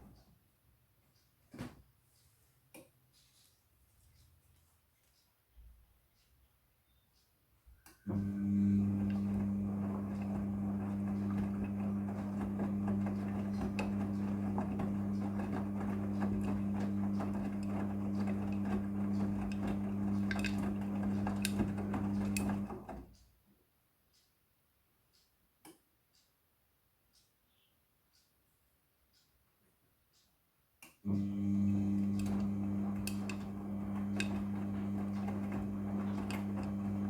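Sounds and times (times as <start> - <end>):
washing machine hum: 8.0 - 23.2, 31.1 - 37.0
small clicks and rattles: 9.0 - 23.3, 32.0 - 37.0.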